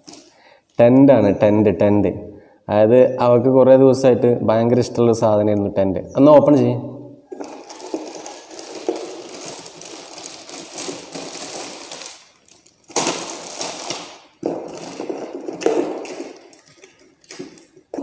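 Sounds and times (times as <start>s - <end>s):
packaging crackling and rustling: 7.3s - 18.0s.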